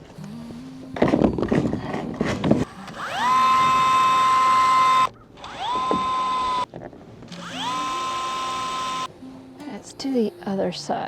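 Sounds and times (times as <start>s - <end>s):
power drill whining: 2.6s - 6.7s, 7.3s - 9.1s.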